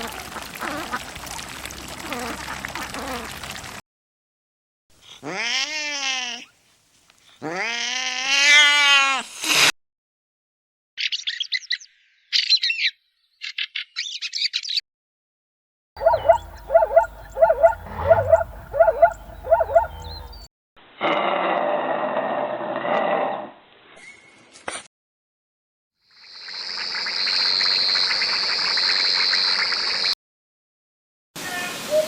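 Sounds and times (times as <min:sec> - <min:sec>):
high bird chirps: 0:16.0 - 0:20.5
short repeated animal calls: 0:16.0 - 0:20.5.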